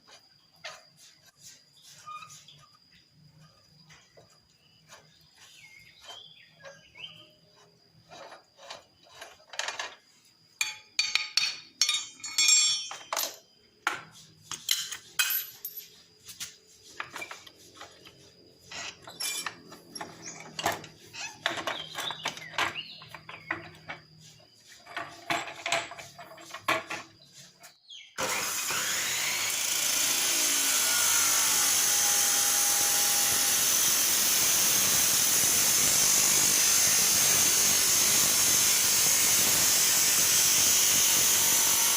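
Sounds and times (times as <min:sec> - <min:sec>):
metal parts clinking and knocking: 0:08.1 - 0:16.0, 0:18.7 - 0:24.0, 0:24.8 - 0:27.2
loud steady hissing: 0:31.8 - 0:41.9.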